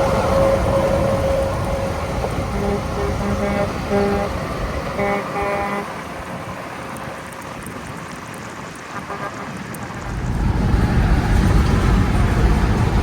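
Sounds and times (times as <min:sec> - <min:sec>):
road traffic rumble: 0:00.0 - 0:13.0
vehicle horn short blasts: 0:02.5 - 0:04.4, 0:05.0 - 0:05.9.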